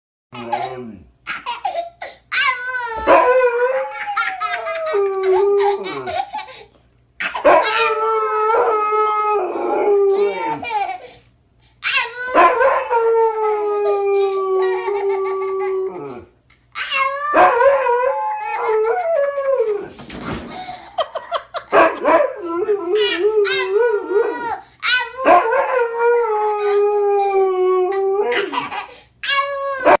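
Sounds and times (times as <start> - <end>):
baby laughing: 0.4 - 3.0, 3.9 - 8.0, 10.1 - 11.2, 14.6 - 17.4, 28.3 - 30.0
dog howling: 3.0 - 6.2, 7.4 - 10.7, 12.3 - 16.3, 17.2 - 19.9, 25.2 - 28.6.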